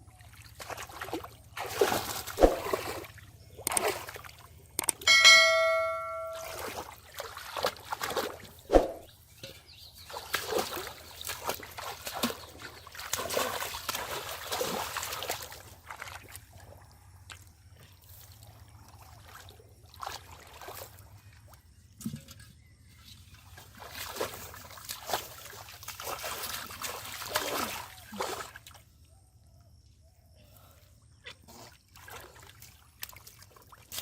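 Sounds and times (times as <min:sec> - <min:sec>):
water splashing and sloshing: 0:00.0 - 0:29.1, 0:31.1 - 0:34.0
bell-like ding: 0:05.1 - 0:06.7.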